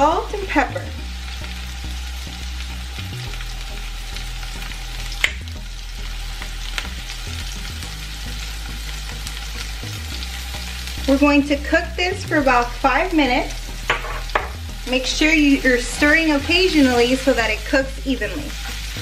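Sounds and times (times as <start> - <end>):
vegetables sizzling in oil: 0.0 - 19.0.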